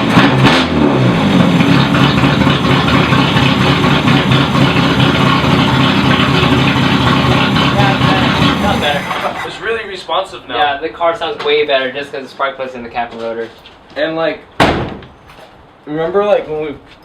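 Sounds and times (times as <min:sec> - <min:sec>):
car engine running loud: 0:00.0 - 0:09.6.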